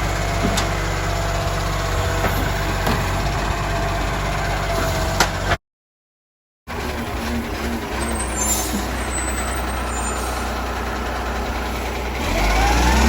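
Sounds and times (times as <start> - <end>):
garbage truck engine running: 0.0 - 5.6, 6.7 - 13.0
faint high squeal: 8.0 - 10.5.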